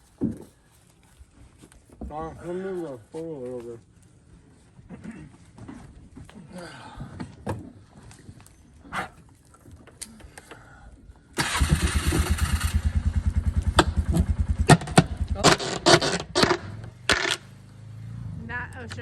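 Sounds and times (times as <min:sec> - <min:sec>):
engine starter cranking: 0:11.4 - 0:17.6
engine running hum: 0:11.4 - 0:19.0
engine catching with bangs: 0:11.5 - 0:18.1.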